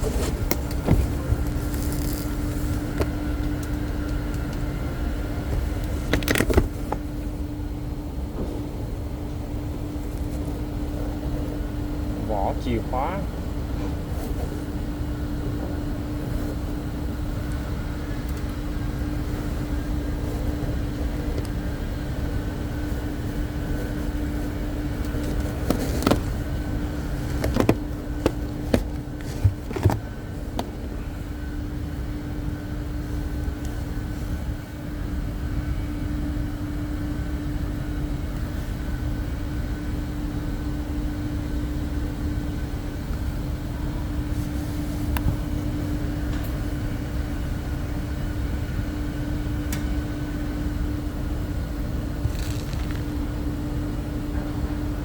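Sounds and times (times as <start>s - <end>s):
car engine running: 0.0s - 7.3s, 18.9s - 30.8s
constant hum: 0.0s - 55.0s.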